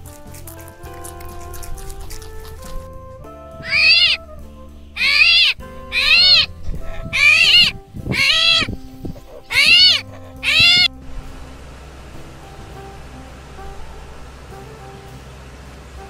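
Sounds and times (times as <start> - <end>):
soft background music: 0.0 - 16.0
animal crying in high calls: 3.6 - 4.3, 5.0 - 10.9.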